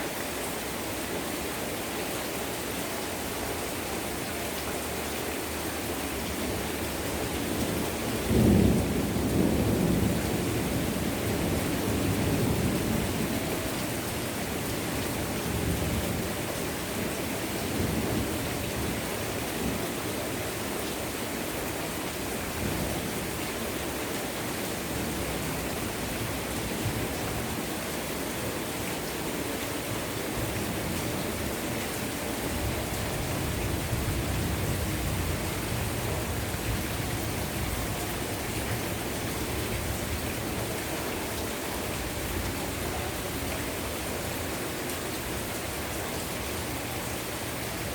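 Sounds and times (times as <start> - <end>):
heavy rain pouring: 0.0 - 47.9
thunder rumbling: 7.7 - 13.4.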